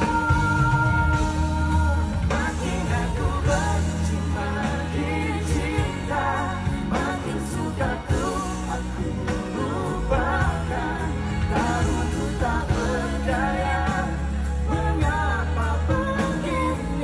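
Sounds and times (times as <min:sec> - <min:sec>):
band with steady bass line: 0:00.0 - 0:17.0
person singing pop song: 0:00.0 - 0:17.0.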